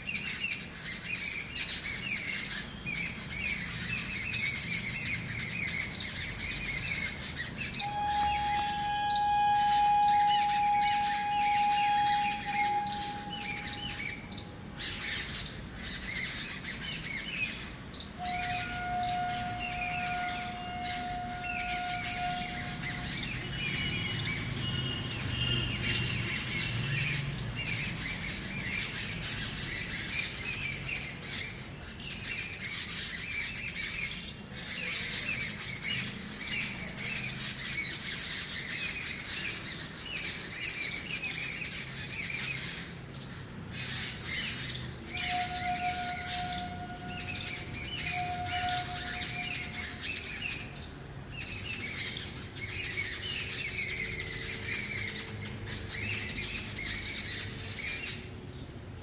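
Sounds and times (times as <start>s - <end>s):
birds alarm calling: 0.0s - 58.7s
faint whistle tone: 7.8s - 14.4s, 45.2s - 49.8s.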